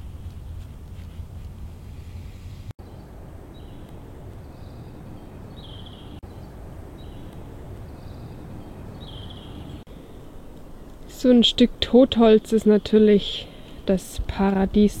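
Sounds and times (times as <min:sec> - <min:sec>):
background hiss and rumble: 0:00.0 - 0:15.0
small bird chirping: 0:02.8 - 0:09.9.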